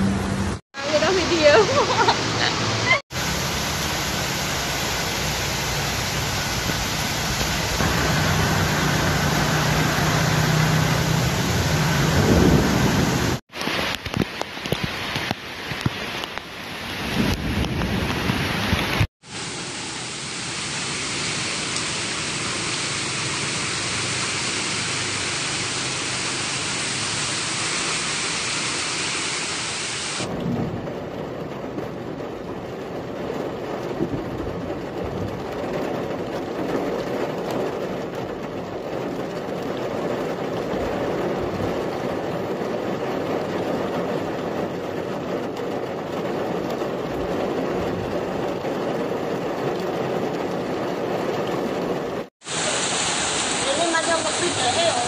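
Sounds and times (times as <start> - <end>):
vehicles driving through water: 0.0 - 13.4
running floodwater: 0.0 - 30.6, 34.8 - 55.0
heavy rain hissing: 0.2 - 30.5, 51.9 - 55.0.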